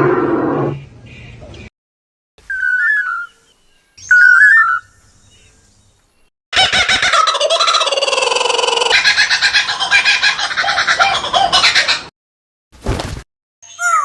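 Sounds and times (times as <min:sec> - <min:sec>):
warbling whistle-like bird calls: 0:02.5 - 0:03.4, 0:04.0 - 0:05.0.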